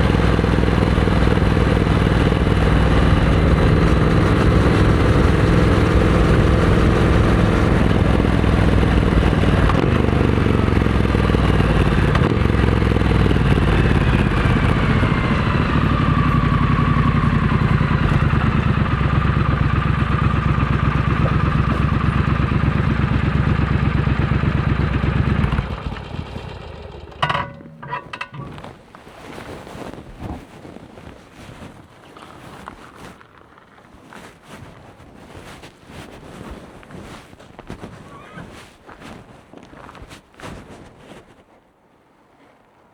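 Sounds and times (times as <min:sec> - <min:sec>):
motorcycle engine running: 0:00.0 - 0:28.8.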